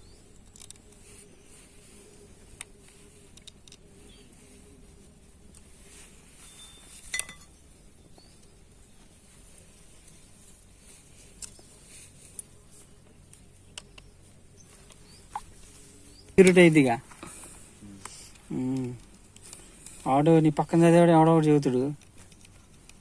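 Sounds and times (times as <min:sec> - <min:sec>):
small clicks: 0:00.4 - 0:01.1, 0:02.5 - 0:04.2, 0:11.3 - 0:11.7, 0:13.2 - 0:14.1, 0:21.8 - 0:23.0
metallic clink ringing: 0:06.4 - 0:07.6.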